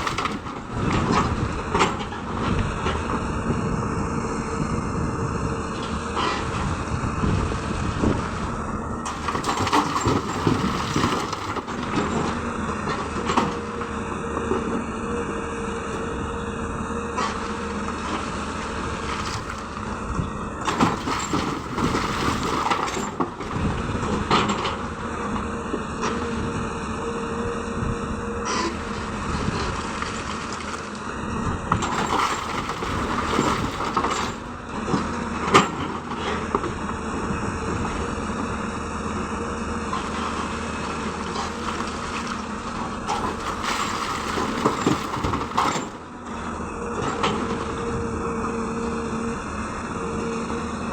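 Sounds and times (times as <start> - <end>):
excavator diesel engine under load: 0.0 - 50.9
stone clattering into dump truck: 9.1 - 12.0.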